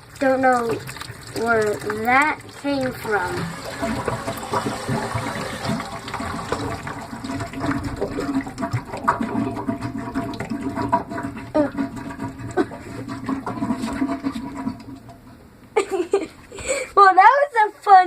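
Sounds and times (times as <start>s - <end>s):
water draining with gurgling: 0.0s - 15.4s.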